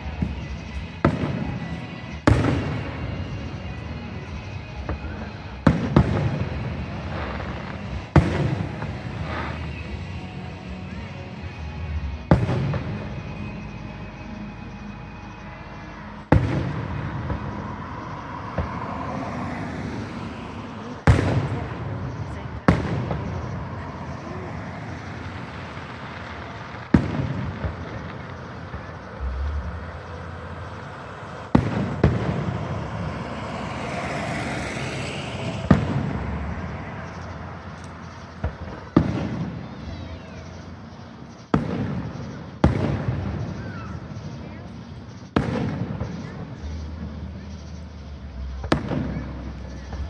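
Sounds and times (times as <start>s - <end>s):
fireworks booming: 0.0s - 15.4s, 16.1s - 50.0s
rolling rumble: 0.0s - 40.0s
firework shells bursting: 20.7s - 39.6s.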